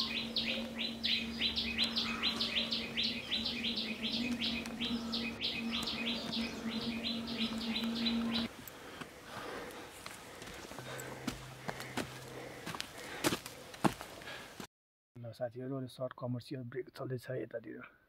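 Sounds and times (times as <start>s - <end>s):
bird calling falling notes: 0.0s - 8.5s
steady low hum: 0.0s - 14.0s.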